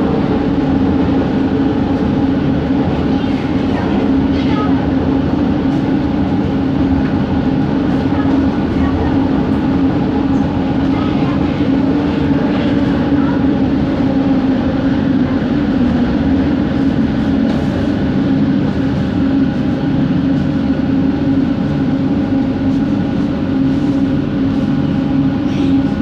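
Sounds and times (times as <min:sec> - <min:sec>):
train motor hum: 0:00.0 - 0:26.0
train running gear rumble: 0:00.0 - 0:26.0.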